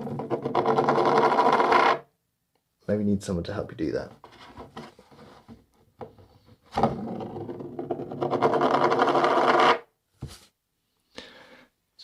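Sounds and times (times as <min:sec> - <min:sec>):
coin rattling on cardboard: 0:00.0 - 0:02.0, 0:07.4 - 0:09.8.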